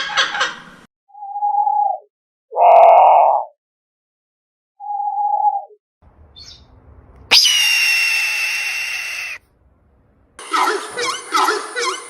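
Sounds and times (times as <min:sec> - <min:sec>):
high steady bird call: 0:07.3 - 0:09.4
short falling bird call: 0:07.3 - 0:09.4.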